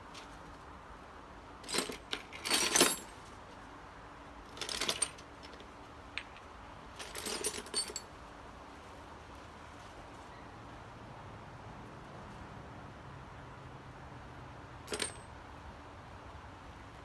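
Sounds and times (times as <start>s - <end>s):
metal tools clinking together: 1.6s - 3.2s, 14.9s - 15.2s.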